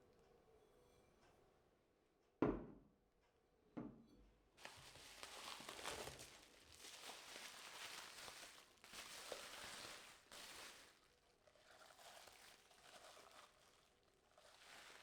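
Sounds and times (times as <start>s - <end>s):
faint rustling and handling noise: 4.6s - 15.0s.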